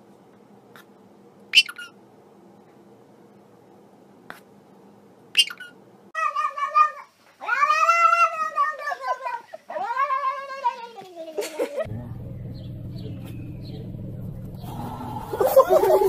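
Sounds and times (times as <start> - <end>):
cat yowling: 6.2 - 10.8.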